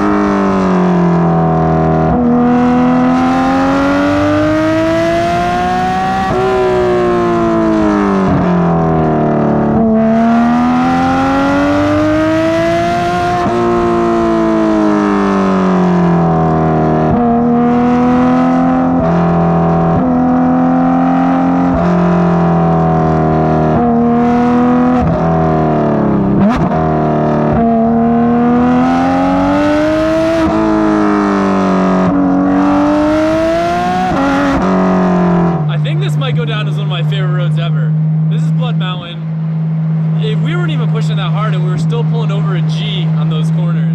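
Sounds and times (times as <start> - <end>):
sports car engine revving hard: 0.0 - 43.9.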